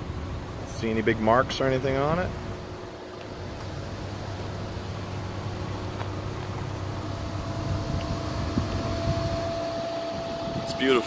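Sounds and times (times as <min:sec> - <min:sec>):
car engine idling: 0:00.0 - 0:11.0
high steady whine: 0:00.0 - 0:11.0.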